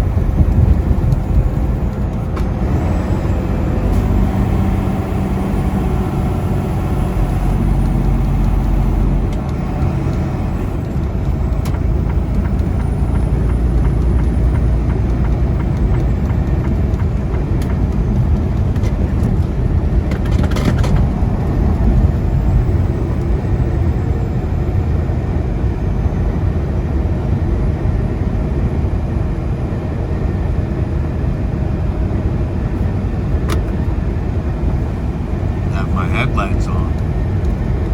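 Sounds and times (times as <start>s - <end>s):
diesel engine drone: 0.0s - 37.9s
road noise: 0.0s - 37.9s.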